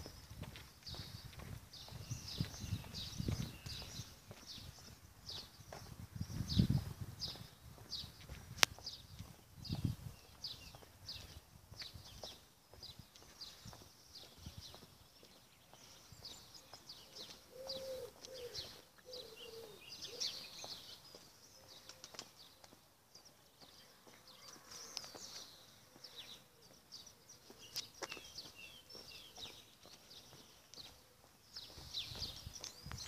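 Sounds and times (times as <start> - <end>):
small birds chirping and trilling: 0.0 - 33.0
lower warbling bird call: 17.5 - 20.5.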